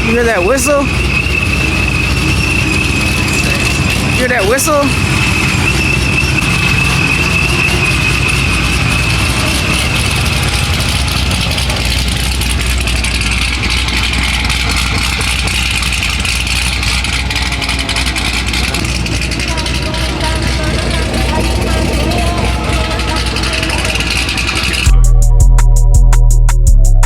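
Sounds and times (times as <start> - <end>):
high-pitched whistle: 0.0 - 12.2
car engine idling: 0.0 - 27.0.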